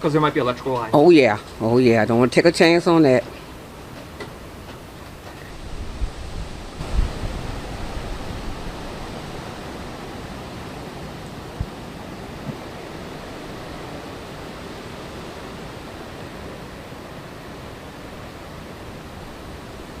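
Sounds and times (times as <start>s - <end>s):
hurricane wind and rain: 0.0s - 20.0s
low thumps: 11.4s - 13.0s.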